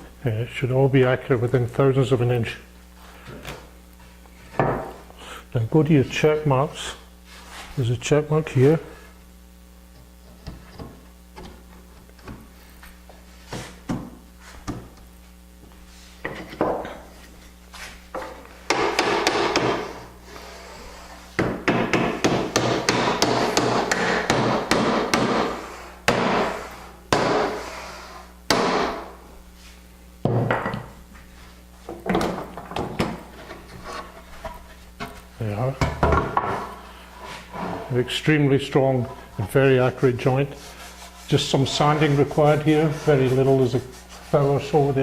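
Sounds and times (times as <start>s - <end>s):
hammer striking wood: 18.2s - 19.9s, 21.4s - 26.5s, 27.1s - 27.6s, 28.5s - 29.1s.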